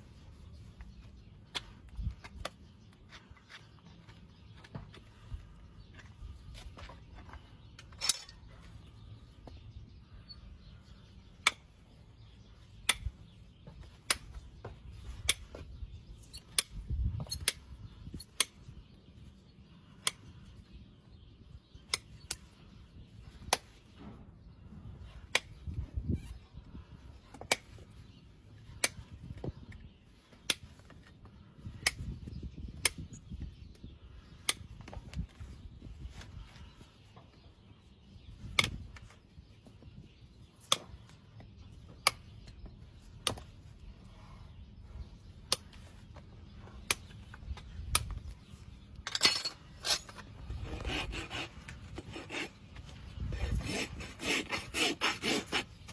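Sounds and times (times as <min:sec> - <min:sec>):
hoof trimming snaps and clicks: 0:12.8 - 0:13.1, 0:14.0 - 0:14.4, 0:25.3 - 0:25.5, 0:28.8 - 0:29.0, 0:30.4 - 0:30.6, 0:38.6 - 0:39.2, 0:40.6 - 0:41.2, 0:43.2 - 0:43.5, 0:45.5 - 0:45.8, 0:46.8 - 0:48.4.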